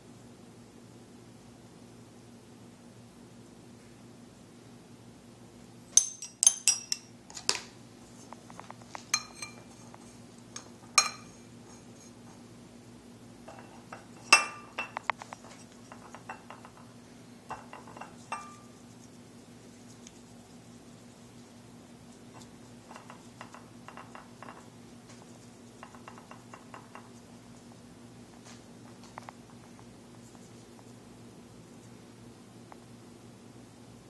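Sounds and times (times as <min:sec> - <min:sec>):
faint electrical hum: 0:00.0 - 0:34.0
ceramic dishes clinking: 0:06.0 - 0:07.1, 0:09.1 - 0:09.9, 0:10.6 - 0:12.2, 0:13.5 - 0:15.1, 0:15.9 - 0:16.9, 0:17.5 - 0:18.7, 0:22.4 - 0:24.7, 0:25.8 - 0:27.1.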